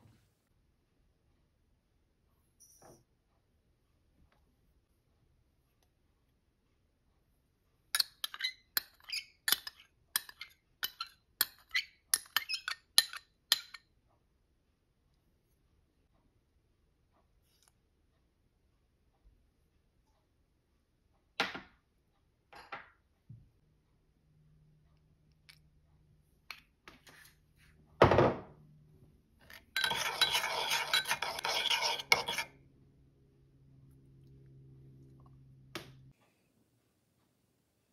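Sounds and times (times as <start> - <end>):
utensil clinking against glass bowl: 8.0 - 13.8, 29.5 - 32.5
utensil clinking on dish: 29.5 - 32.5.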